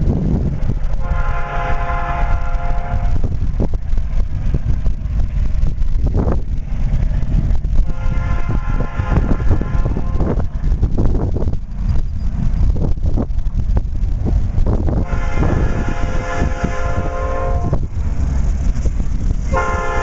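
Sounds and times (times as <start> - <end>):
heavy low rumble: 0.0 - 20.0
locomotive air horn blasts: 1.0 - 3.3, 7.8 - 10.4, 15.0 - 17.8, 19.5 - 20.0.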